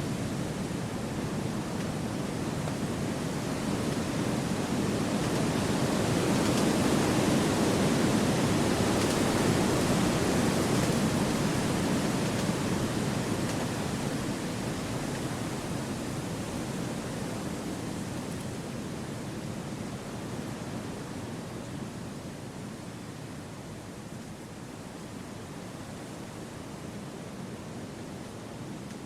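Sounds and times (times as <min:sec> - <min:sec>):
wind rushing through trees: 0:00.0 - 0:29.0.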